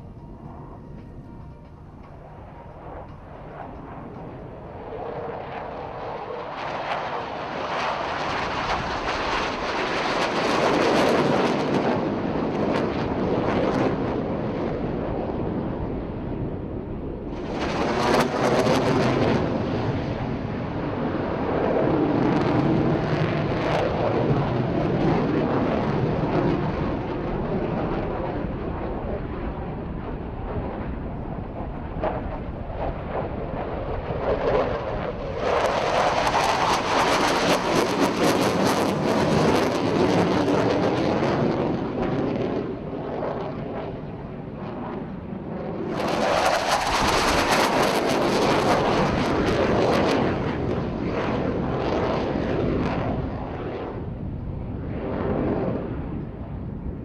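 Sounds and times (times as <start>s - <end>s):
jet engine roar: 0.0s - 57.0s.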